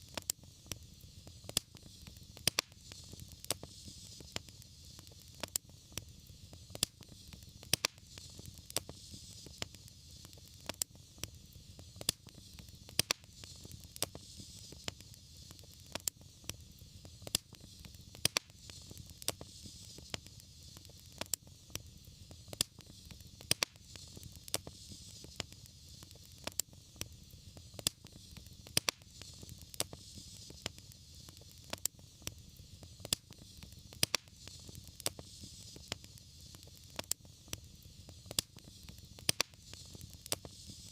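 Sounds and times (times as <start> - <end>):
low rush and hiss of fire: 0.0 - 40.9
wood fire crackling: 0.0 - 40.9.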